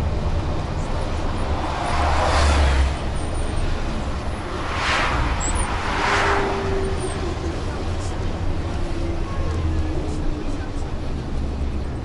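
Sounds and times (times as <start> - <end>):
bus engine: 0.0 - 12.0
road rumble: 0.0 - 12.0
rushing noise: 1.1 - 8.6.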